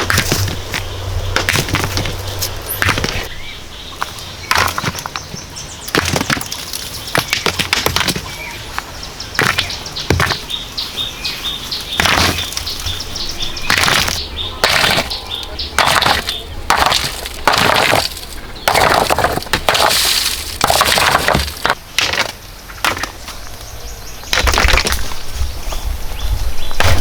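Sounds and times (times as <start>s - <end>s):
hand tool scrapes and knocks: 9.4s - 10.5s, 12.0s - 12.8s.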